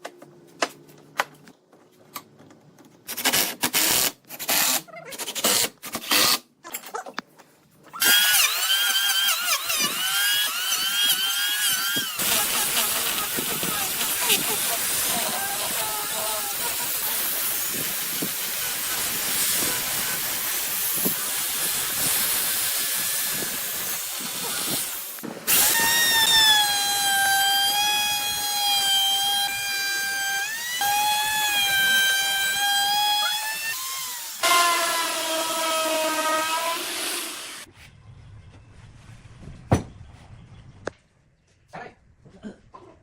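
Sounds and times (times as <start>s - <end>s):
lower-pitched tool whine: 8.0s - 20.5s.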